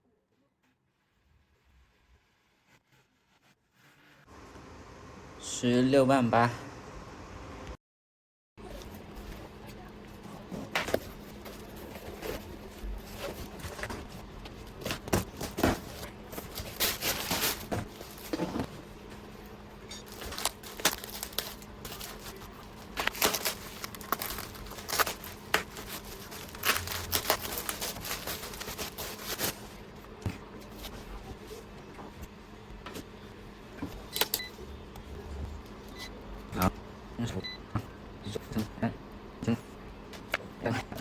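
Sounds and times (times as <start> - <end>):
rustling and crinkling: 8.6 - 34.2
steady low hum: 8.6 - 41.0.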